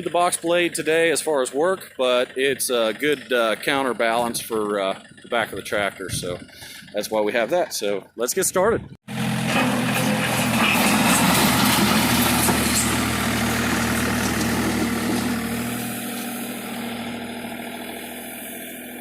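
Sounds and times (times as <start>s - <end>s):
tractor engine idling: 0.0s - 8.4s, 9.1s - 19.0s.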